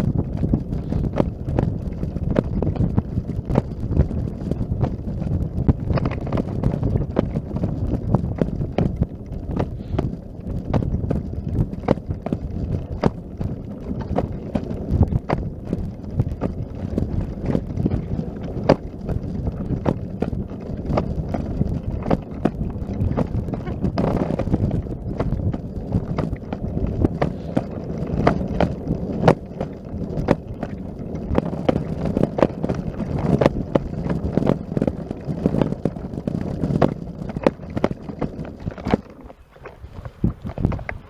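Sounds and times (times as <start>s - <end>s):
low microphone rumble: 0.0s - 41.0s
footsteps in snow: 26.5s - 31.9s.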